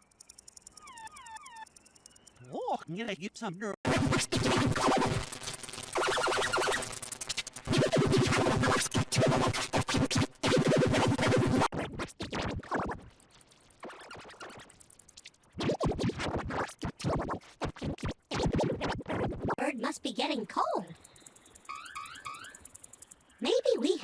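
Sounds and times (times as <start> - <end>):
stuttered glitchy audio: 3.9 - 13.0, 21.0 - 24.0.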